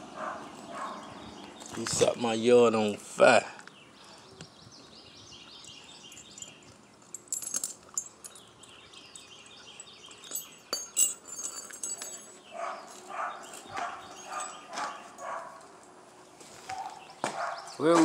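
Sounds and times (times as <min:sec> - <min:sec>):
bird chirping: 0:00.0 - 0:18.0
metallic clinks and rattles: 0:05.6 - 0:15.9.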